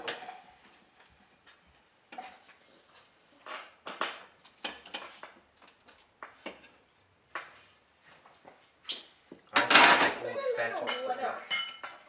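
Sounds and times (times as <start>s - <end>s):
dishes and utensils clinking: 8.9s - 12.0s.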